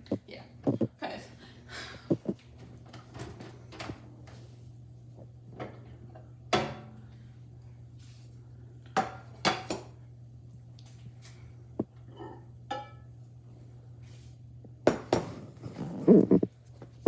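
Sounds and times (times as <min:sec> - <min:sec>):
steady low hum: 0:00.0 - 0:17.0
dishes clinking and knocking: 0:12.7 - 0:13.0.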